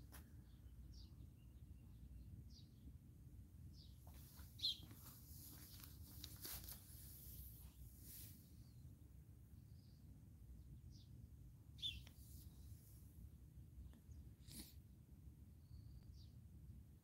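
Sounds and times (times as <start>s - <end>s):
high bird chirps: 4.6s - 5.0s, 11.8s - 12.1s.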